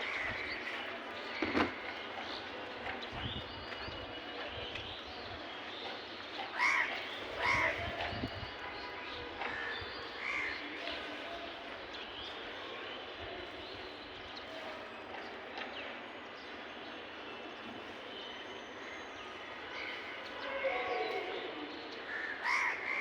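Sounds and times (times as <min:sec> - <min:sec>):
crows cawing: 0:06.6 - 0:07.8, 0:22.1 - 0:23.0.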